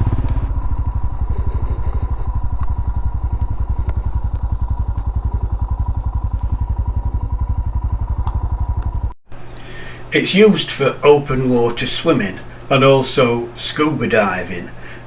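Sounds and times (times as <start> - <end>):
motorcycle engine idling: 0.0 - 9.2.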